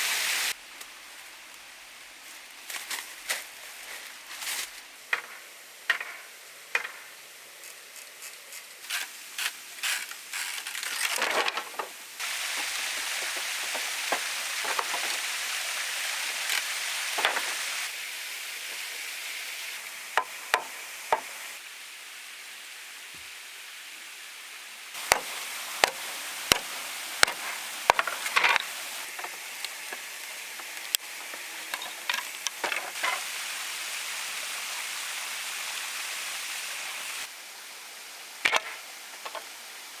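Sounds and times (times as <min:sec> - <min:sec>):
steady hiss: 0:00.0 - 0:40.0
hand tools knocking and tapping: 0:05.1 - 0:07.1, 0:20.2 - 0:21.3, 0:25.1 - 0:30.0.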